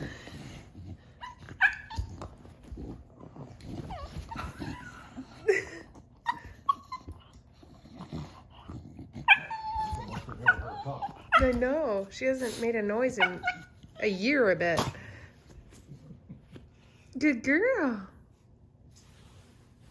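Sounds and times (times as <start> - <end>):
dog whining: 0.6 - 2.8, 3.4 - 12.1, 13.2 - 14.3.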